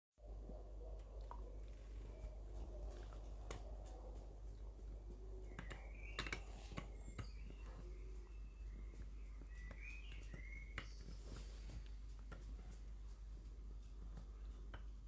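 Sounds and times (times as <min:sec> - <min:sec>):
teeth clicking on bone: 0:05.4 - 0:07.7.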